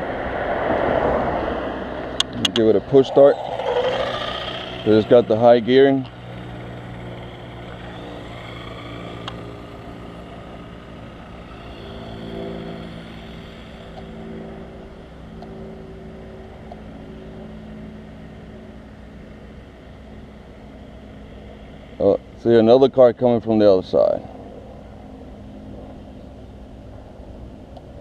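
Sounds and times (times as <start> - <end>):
whines rising and falling: 0.0 - 19.4
vehicle engine humming: 0.0 - 28.0.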